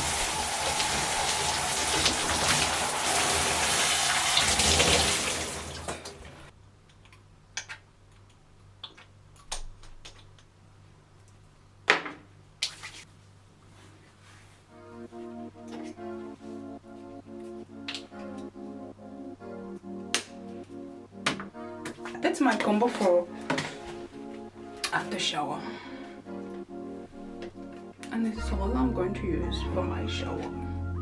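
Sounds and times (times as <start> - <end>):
shower water running: 0.0 - 6.5.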